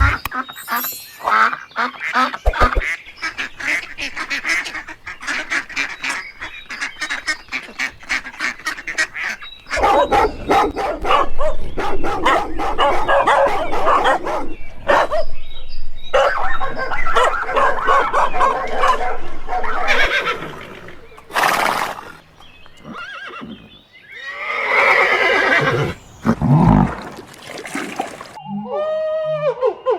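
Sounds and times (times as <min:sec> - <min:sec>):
waterfowl honking: 0:01.3 - 0:15.3, 0:16.1 - 0:21.3.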